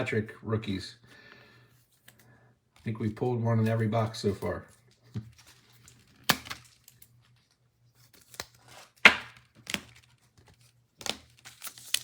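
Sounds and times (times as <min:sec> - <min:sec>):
trading cards snapping and rustling: 0:03.7 - 0:07.2, 0:08.0 - 0:12.0.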